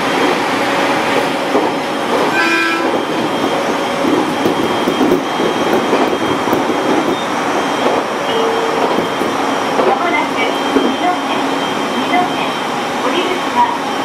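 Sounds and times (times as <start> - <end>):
train wheels rumbling on rails: 0.0 - 14.0
brief held tone: 7.1 - 9.4.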